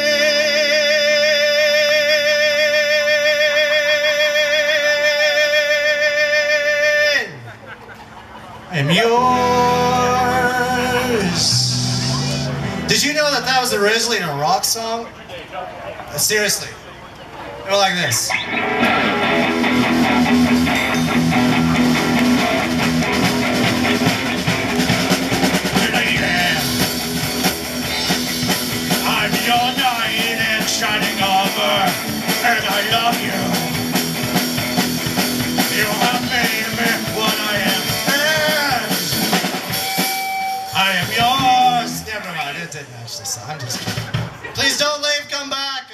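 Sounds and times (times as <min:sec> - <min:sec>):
person singing a long high note: 0:08.8 - 0:12.9
upbeat rock guitar: 0:18.0 - 0:42.6
drum kit beat: 0:18.7 - 0:42.4, 0:43.6 - 0:44.9.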